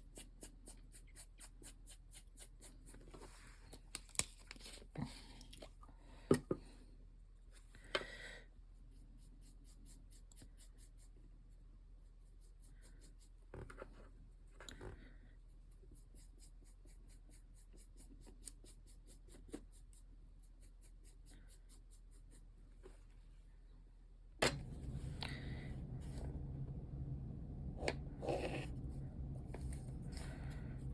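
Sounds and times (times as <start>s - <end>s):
paintbrush strokes: 8.6s - 23.3s, 27.8s - 30.9s.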